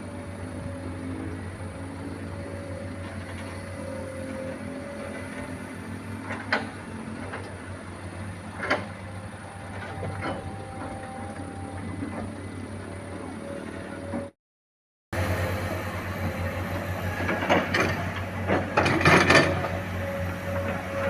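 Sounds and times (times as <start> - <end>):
truck engine running: 0.0 - 14.3, 15.2 - 21.0.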